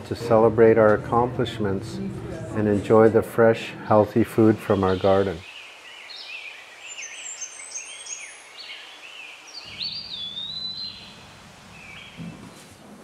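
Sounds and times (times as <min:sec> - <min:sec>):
songbirds chirping and singing: 0:04.1 - 0:12.4.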